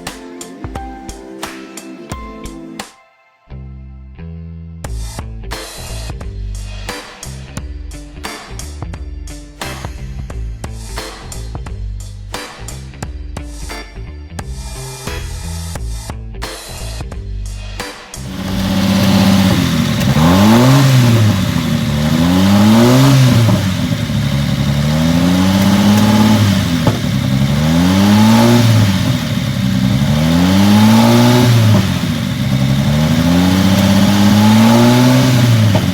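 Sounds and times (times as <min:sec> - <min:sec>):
car engine idling and revving: 0:18.2 - 0:35.9.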